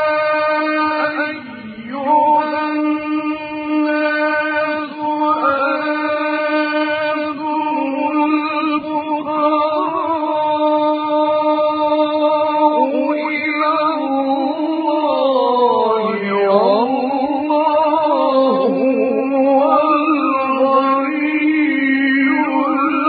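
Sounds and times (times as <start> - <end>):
man chanting recitation: 0.0 - 23.0.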